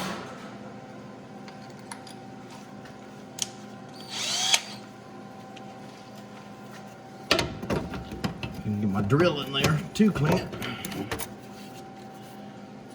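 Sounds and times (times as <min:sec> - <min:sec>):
steady hum: 0:00.1 - 0:12.9
power drill motor whine: 0:03.9 - 0:04.8.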